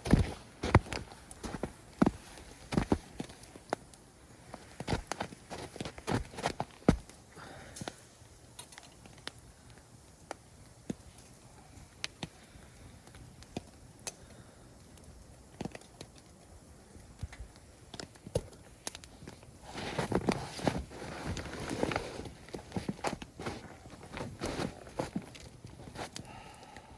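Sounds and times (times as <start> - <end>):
crunching and rustling: 0.0 - 3.8, 4.4 - 7.2, 18.9 - 26.3
campfire crackling: 0.0 - 26.9.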